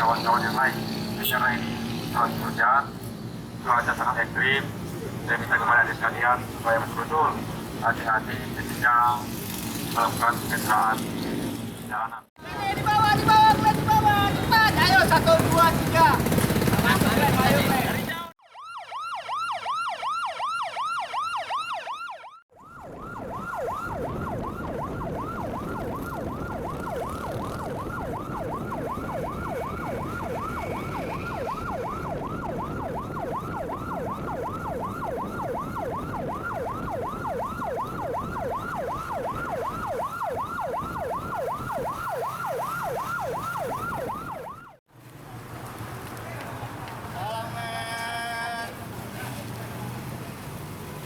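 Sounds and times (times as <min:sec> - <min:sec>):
electronic siren yelping: 0:18.2 - 0:44.8.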